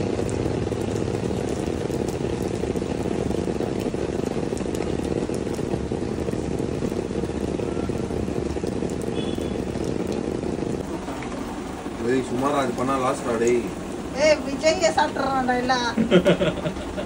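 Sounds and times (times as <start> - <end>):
rain falling on pavement: 0.0 - 17.0.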